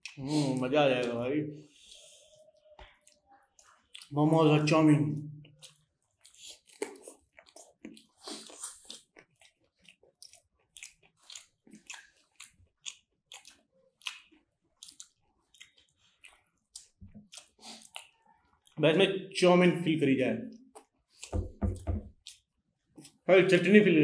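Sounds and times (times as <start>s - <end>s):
people chewing with mouth smacks: 0.0s - 4.2s, 5.2s - 18.8s, 20.5s - 23.3s.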